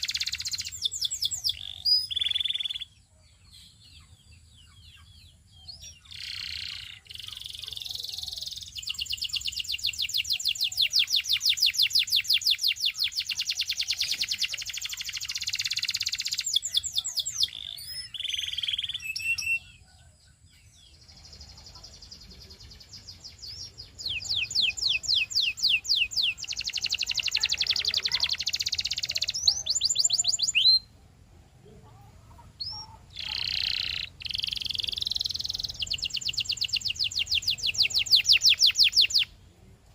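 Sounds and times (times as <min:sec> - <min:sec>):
canary singing trills: 0:00.0 - 0:39.4.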